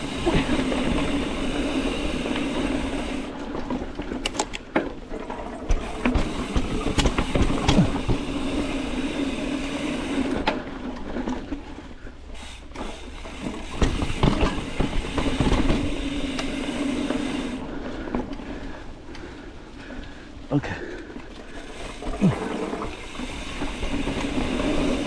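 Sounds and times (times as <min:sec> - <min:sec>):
bike tyres rolling on dirt: 0:00.0 - 0:25.0
bike knocks and rattles: 0:02.4 - 0:09.3, 0:12.7 - 0:17.4, 0:21.7 - 0:25.0.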